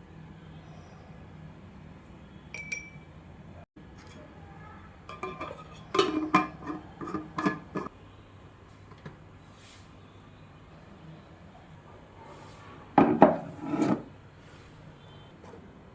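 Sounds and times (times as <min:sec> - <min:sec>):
dishes and utensils clinking: 0:02.5 - 0:03.1, 0:05.1 - 0:07.9.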